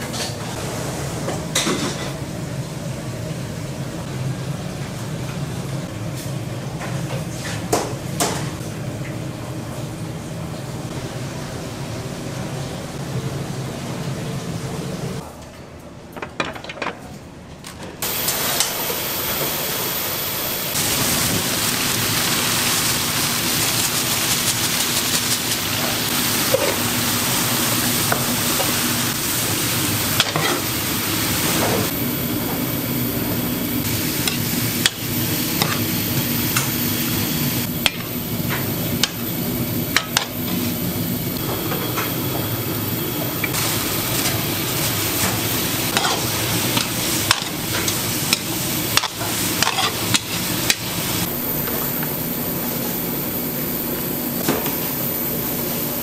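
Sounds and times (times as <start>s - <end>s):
food sizzling in a pan: 18.0s - 56.0s.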